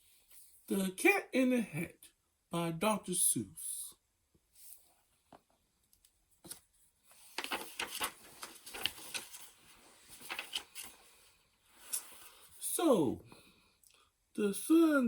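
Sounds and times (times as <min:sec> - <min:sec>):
book pages turning: 0:06.4 - 0:12.5.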